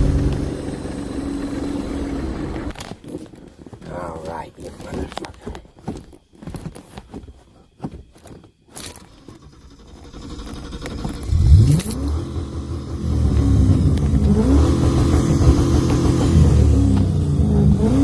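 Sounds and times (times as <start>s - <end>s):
car engine revving: 0.0s - 2.7s, 9.4s - 18.0s.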